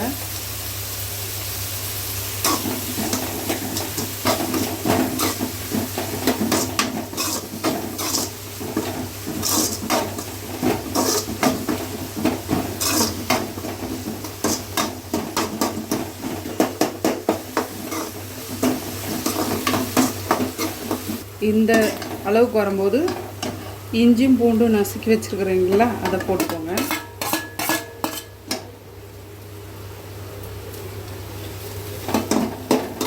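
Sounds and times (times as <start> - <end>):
onions sizzling in oil: 0.0 - 33.0
spoon scraping a pan: 2.4 - 22.2, 25.7 - 28.6.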